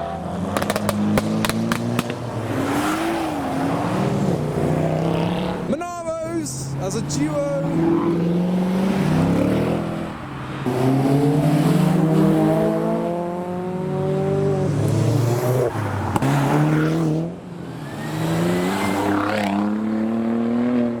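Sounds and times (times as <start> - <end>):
car engine accelerating hard: 0.0 - 5.8, 6.9 - 21.0
sharp crack: 0.5 - 2.3.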